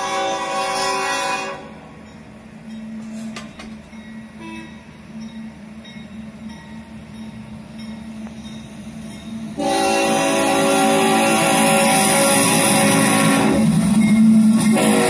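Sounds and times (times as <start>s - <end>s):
train rumble and hum: 0.0s - 15.0s.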